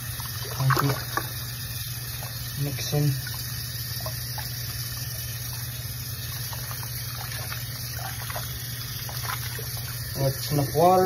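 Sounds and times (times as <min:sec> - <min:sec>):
water running into a sink: 0:00.0 - 0:11.0
hands splashing water: 0:06.4 - 0:10.1.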